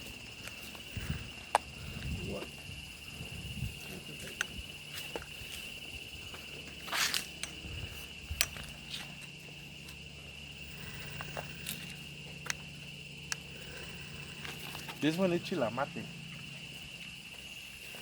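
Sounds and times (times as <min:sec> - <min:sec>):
footsteps on forest floor: 0:00.0 - 0:02.8, 0:03.7 - 0:10.2, 0:14.3 - 0:15.4
insects droning: 0:00.0 - 0:18.0.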